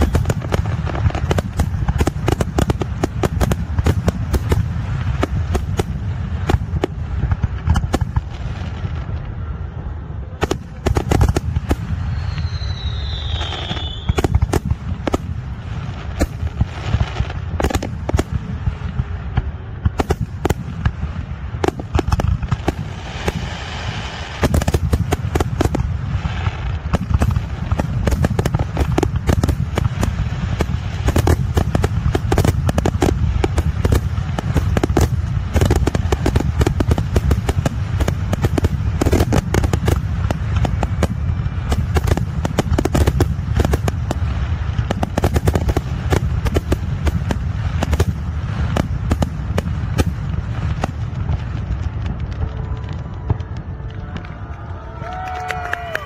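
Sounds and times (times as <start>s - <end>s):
falling firework whistle: 0.0s - 1.4s, 9.0s - 14.6s, 52.2s - 56.0s
firework bangs and crackles: 0.0s - 56.0s
low rumble: 2.8s - 55.9s.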